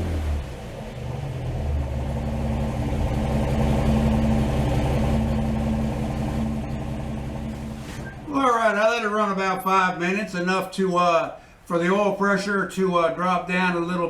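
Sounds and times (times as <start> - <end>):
truck engine running: 0.0 - 8.8.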